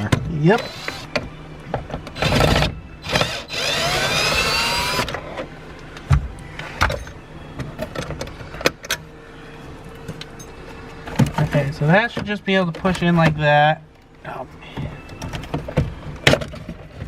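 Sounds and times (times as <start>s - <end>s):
whirring whine rising: 0.6s - 1.2s, 2.2s - 5.9s.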